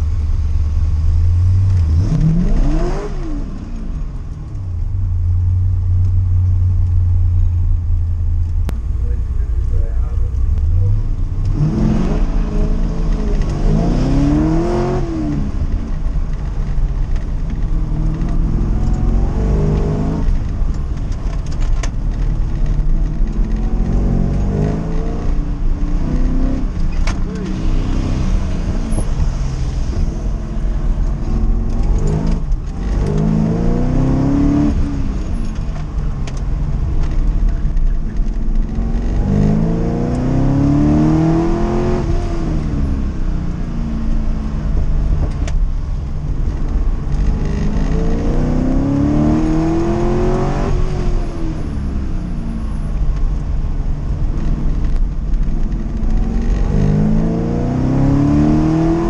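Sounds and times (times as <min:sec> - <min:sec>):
car engine revving: 0:00.0 - 0:04.6, 0:05.3 - 0:59.0
road noise: 0:00.0 - 0:59.0.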